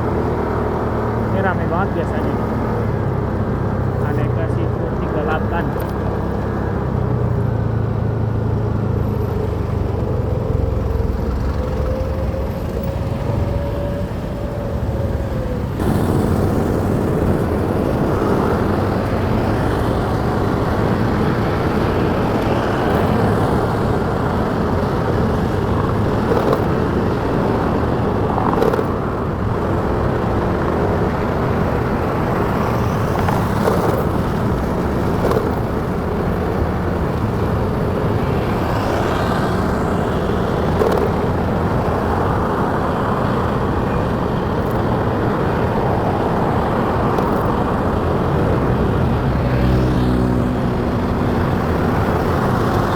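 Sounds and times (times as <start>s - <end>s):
wind and road noise: 0.0s - 52.9s
motorcycle engine running: 15.7s - 52.9s.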